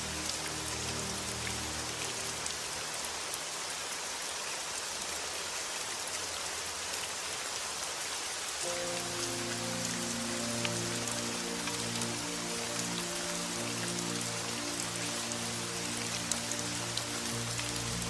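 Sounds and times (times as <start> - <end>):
soft low music tones: 0.0 - 3.3, 8.6 - 18.0
steady rain: 0.0 - 18.0.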